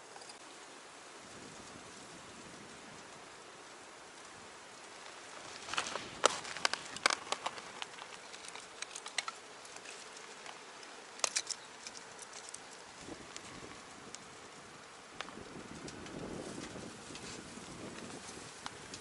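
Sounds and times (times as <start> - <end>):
wood fire crackling and hissing: 0.0 - 19.0
fire pops and snaps: 5.5 - 10.6.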